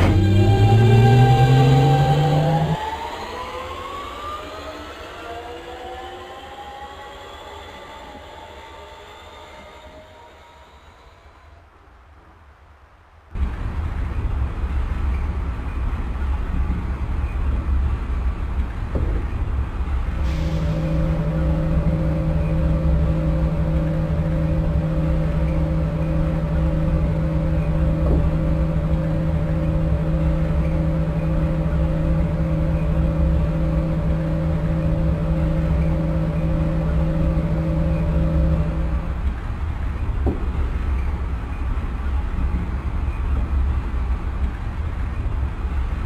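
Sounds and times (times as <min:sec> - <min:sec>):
steady hum: 0:00.0 - 0:46.0
subway train wheels rumbling: 0:00.0 - 0:46.0.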